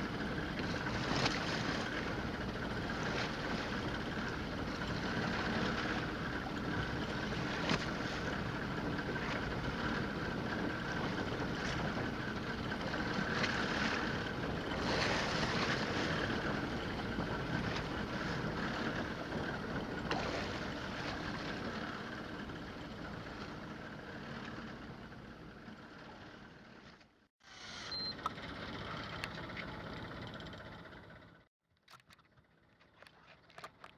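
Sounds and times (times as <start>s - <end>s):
water sloshing: 0.0s - 24.6s, 31.8s - 33.9s
boat engine hum: 0.0s - 33.9s
wind: 0.0s - 33.9s.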